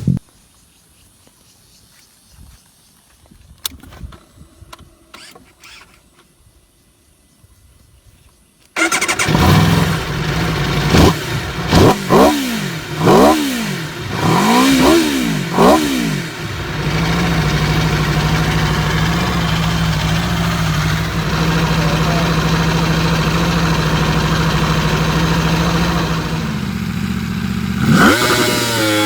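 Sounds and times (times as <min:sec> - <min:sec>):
motorcycle engine revving and idling: 0:08.8 - 0:29.0.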